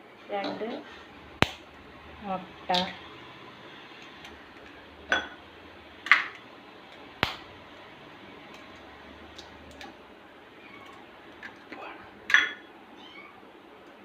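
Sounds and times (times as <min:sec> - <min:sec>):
eggs cracked against bowl: 0:07.2 - 0:07.5.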